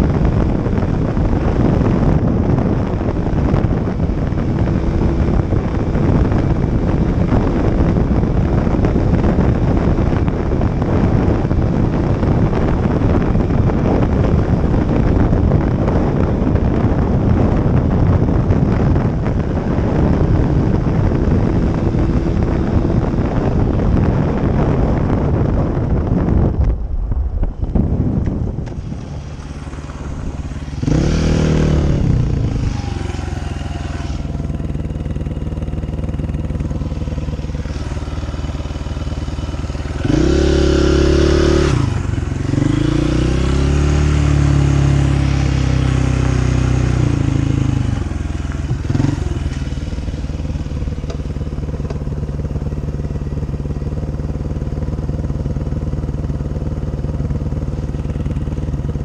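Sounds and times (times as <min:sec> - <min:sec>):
dirt bike engine revving: 0:28.8 - 0:35.3, 0:37.4 - 0:50.4.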